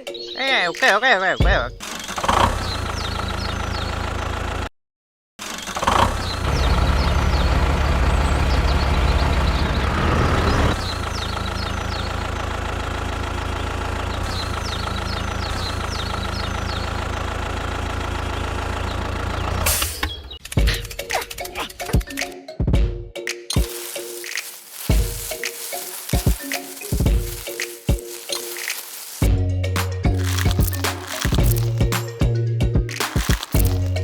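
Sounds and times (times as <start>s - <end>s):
birds chirping: 0.0s - 4.0s, 23.6s - 29.3s, 30.1s - 32.2s, 32.9s - 34.0s
engine idling: 6.4s - 19.7s.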